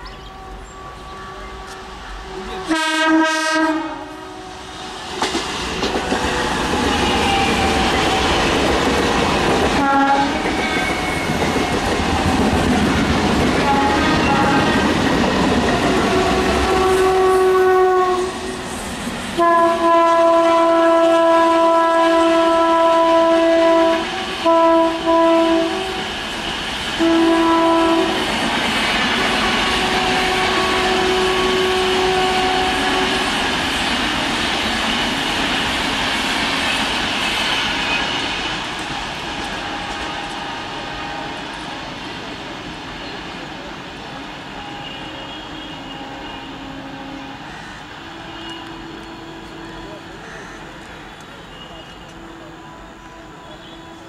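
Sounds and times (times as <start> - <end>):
train rumble and wheel clatter: 0.0 - 54.0
train horn blasts: 0.2 - 5.1, 6.3 - 8.5, 9.7 - 11.6, 13.5 - 14.9, 15.8 - 18.6, 19.4 - 26.2, 27.0 - 28.4, 29.3 - 33.4, 39.6 - 41.7, 44.5 - 50.0, 51.5 - 54.0.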